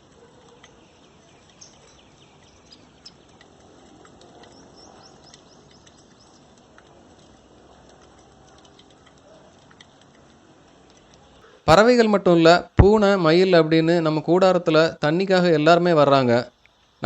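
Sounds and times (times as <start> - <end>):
flock of birds chirping: 0.0 - 11.6.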